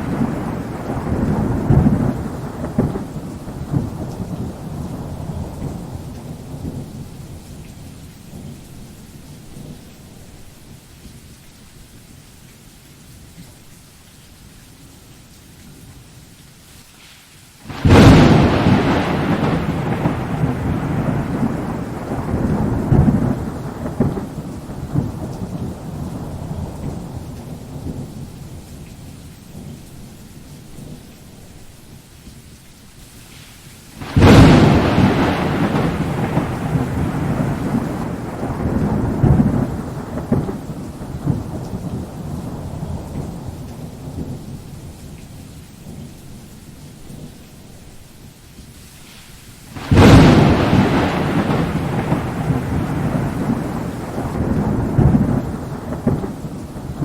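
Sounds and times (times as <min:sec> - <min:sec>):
thunder crack and rumble: 0:00.0 - 0:07.7, 0:17.7 - 0:29.8, 0:34.0 - 0:45.2, 0:49.8 - 0:57.0
steady rain: 0:00.0 - 0:57.0.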